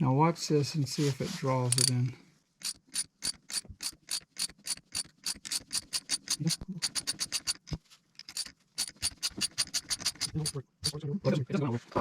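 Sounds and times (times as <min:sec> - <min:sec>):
ratchet wrench clicking: 0:01.7 - 0:01.9, 0:02.6 - 0:10.6.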